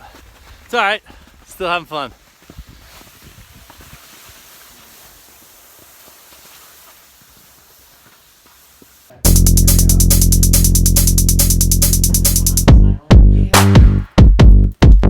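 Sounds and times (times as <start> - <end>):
outdoor hiss: 1.6 - 12.6
electronic music with beat: 9.3 - 15.0.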